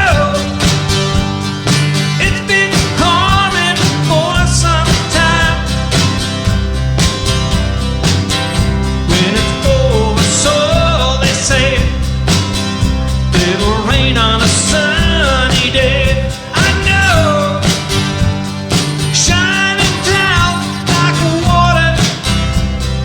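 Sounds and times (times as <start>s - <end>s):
person singing: 0.0s - 0.8s, 2.2s - 5.8s, 9.1s - 12.0s, 13.3s - 17.9s, 19.2s - 22.2s
live rock band playing: 0.0s - 23.0s.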